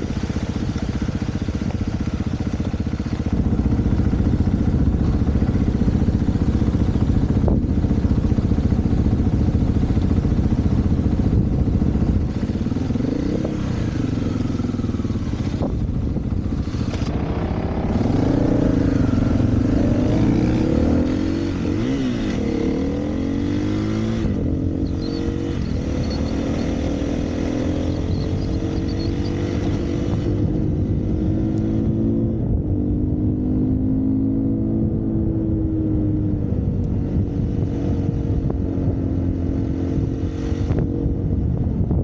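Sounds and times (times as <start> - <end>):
dirt bike engine revving: 2.3 - 32.3.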